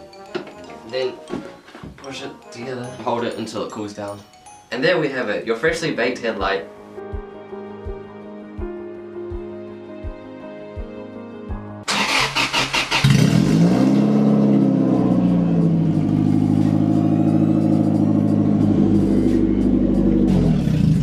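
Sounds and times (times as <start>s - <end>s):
background music with a beat: 0.0s - 4.7s, 6.4s - 11.9s, 14.6s - 20.9s
car engine starting and running: 11.9s - 21.0s.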